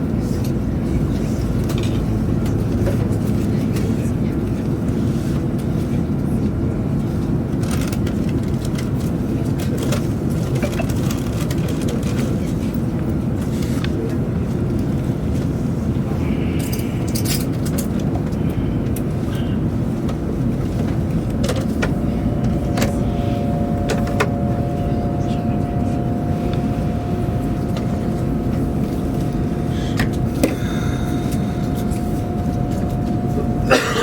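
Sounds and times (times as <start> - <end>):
train rumbling at speed: 0.0 - 34.0
faint steady tone: 21.7 - 34.0.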